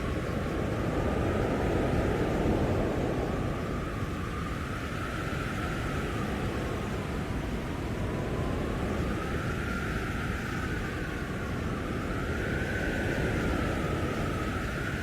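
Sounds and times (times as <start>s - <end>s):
howling wind whistle: 0.0s - 15.0s
low rumble of wind gusts: 0.0s - 15.0s.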